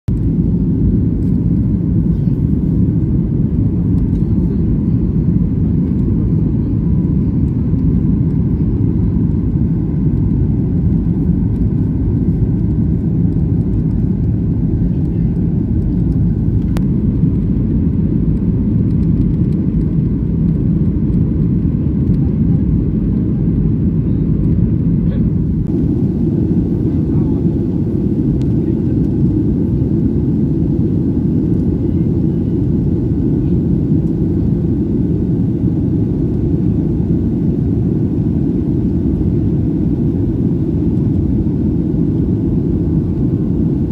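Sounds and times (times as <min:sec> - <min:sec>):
airliner cabin engine rumble: 0:00.1 - 0:43.9.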